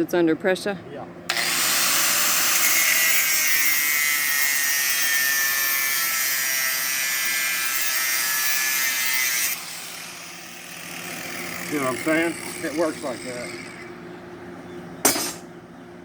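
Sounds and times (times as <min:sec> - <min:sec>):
angle grinder cutting steel: 0:01.3 - 0:14.0.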